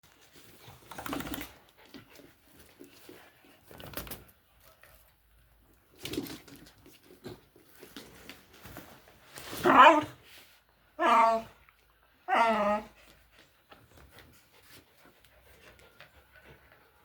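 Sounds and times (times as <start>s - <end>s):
puppy sounds: 9.4s - 10.2s, 10.9s - 17.0s.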